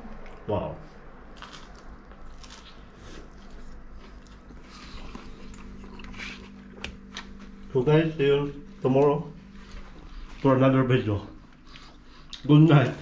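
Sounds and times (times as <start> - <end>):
faint steady hum: 0.0 - 13.0
people chewing pizza: 0.0 - 13.0
soft crunches and mouth sounds: 1.3 - 7.7, 11.4 - 13.0.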